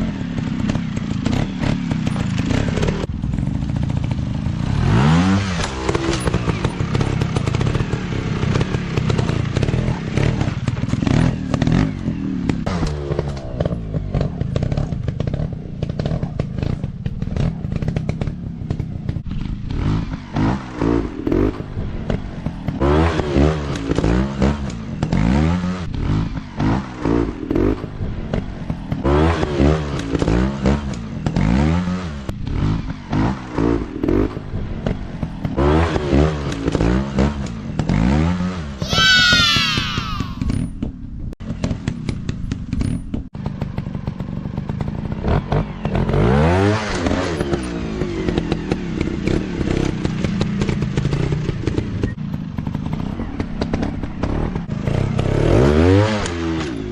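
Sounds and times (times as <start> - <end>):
dirt bike engines revving: 32.5 - 40.6.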